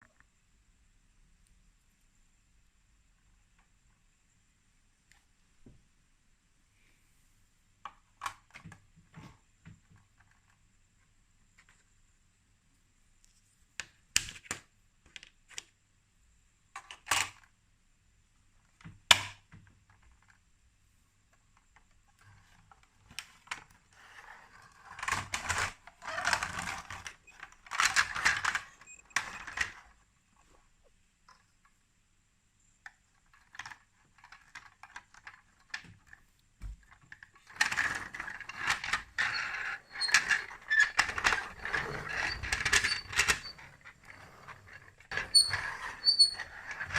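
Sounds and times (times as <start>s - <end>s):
plastic toy pieces clicking: 37.5s - 46.9s.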